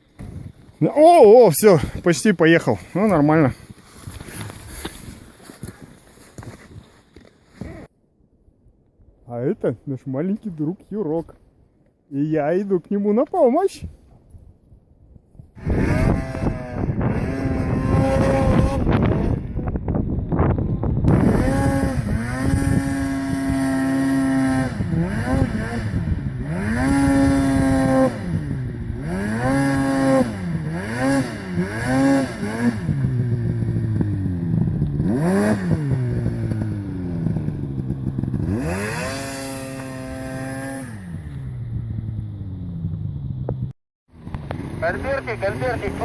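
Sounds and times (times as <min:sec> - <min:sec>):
snowmobile engine revving: 0:15.6 - 0:19.7, 0:21.1 - 0:42.8, 0:44.2 - 0:46.0.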